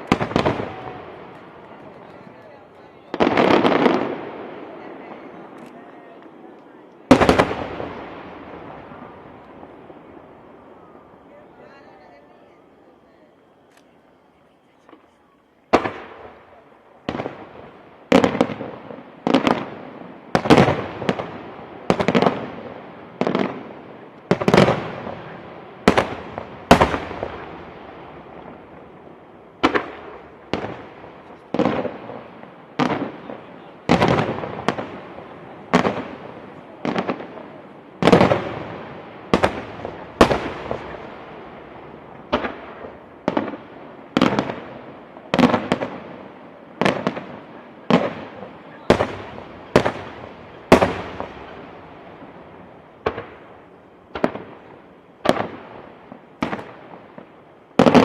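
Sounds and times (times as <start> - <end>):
fireworks bangs echoing: 0.0 - 58.0.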